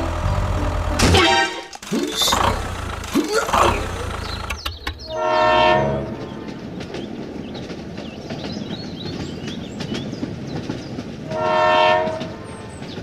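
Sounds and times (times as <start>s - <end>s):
horn blast: 5.0s - 6.5s.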